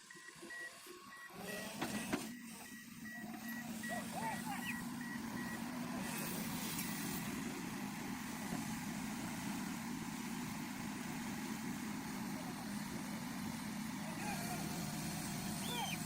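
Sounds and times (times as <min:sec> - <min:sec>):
heavy machinery engine running: 0:00.0 - 0:16.0.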